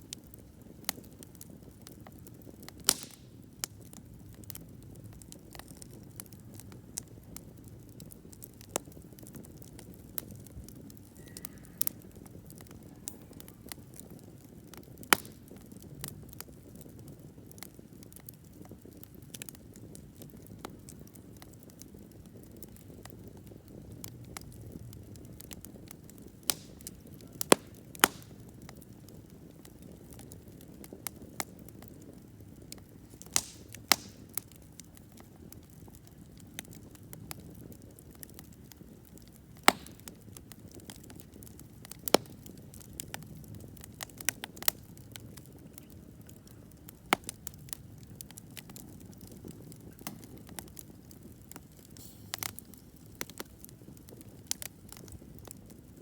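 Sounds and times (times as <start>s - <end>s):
campfire rumbling: 0.0s - 56.0s
fire crackling and popping: 0.0s - 56.0s.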